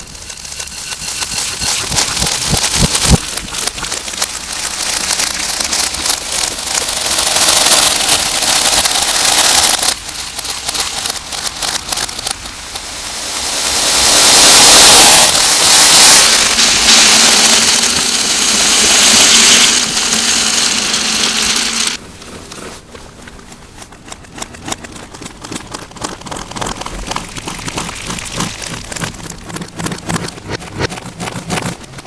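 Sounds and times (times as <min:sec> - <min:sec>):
loud hiss: 0:10.9 - 0:22.0.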